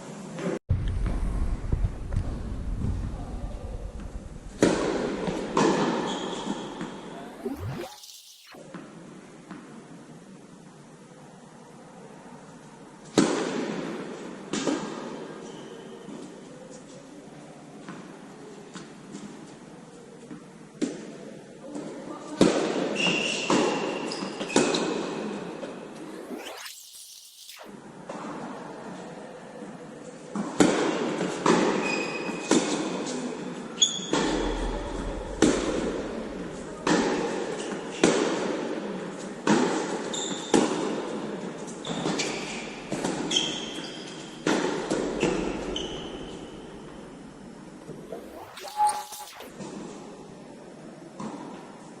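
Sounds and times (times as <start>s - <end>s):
high squeak: 48.1s - 49.5s.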